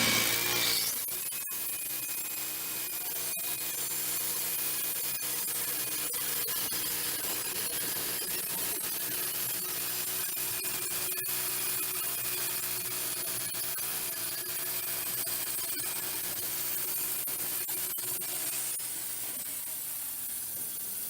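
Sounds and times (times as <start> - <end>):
band sawmill sawing log: 0.0 - 1.0.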